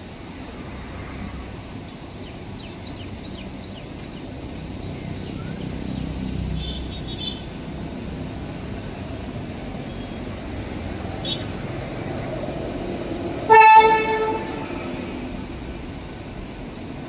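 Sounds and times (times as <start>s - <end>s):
train rumbling: 0.0s - 17.0s
bird chirping: 2.2s - 7.6s.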